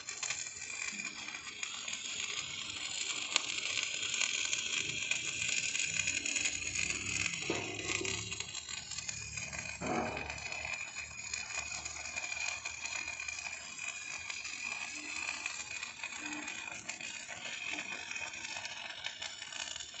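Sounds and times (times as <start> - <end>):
mechanical whine: 0.0 - 20.0
knock or rattle: 9.8 - 10.4.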